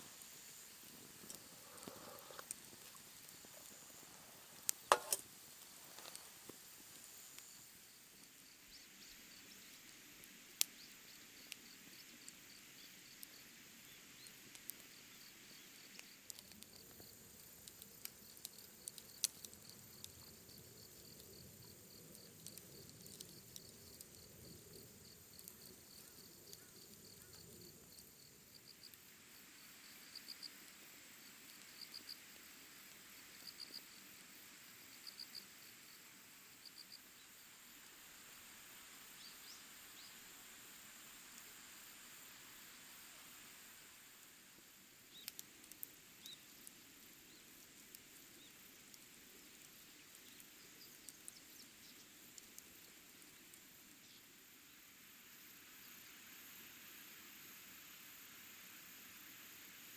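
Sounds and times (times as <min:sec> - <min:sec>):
crickets chirping: 0:00.0 - 0:59.9
sharp clicks and pops: 0:01.1 - 0:03.8, 0:04.5 - 0:07.5.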